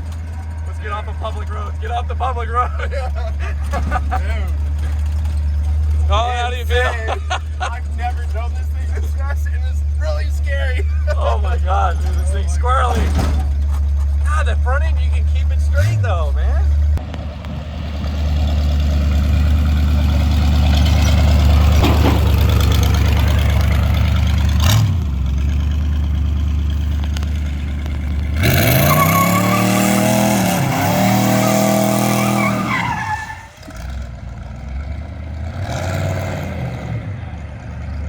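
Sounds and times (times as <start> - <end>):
engine droning and revving: 0.0 - 38.0.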